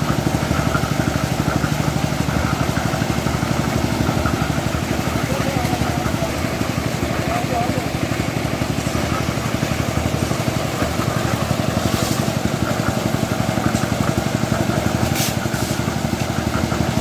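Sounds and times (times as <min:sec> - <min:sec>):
heavy machinery engine running: 0:00.0 - 0:17.0.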